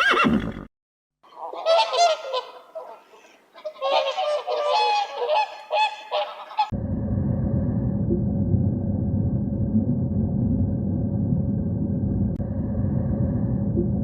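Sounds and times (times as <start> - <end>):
birds honking: 1.4 - 6.7.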